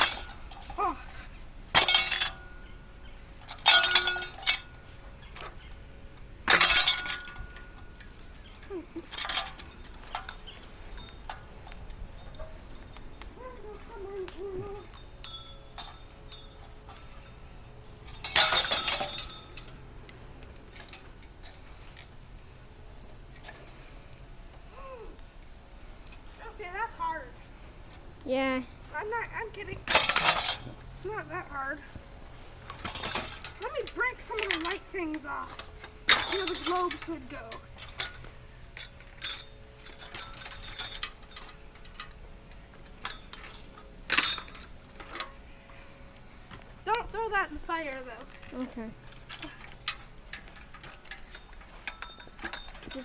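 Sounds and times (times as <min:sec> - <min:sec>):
light clinks: 0:00.0 - 0:22.2, 0:32.7 - 0:47.3, 0:47.9 - 0:53.0.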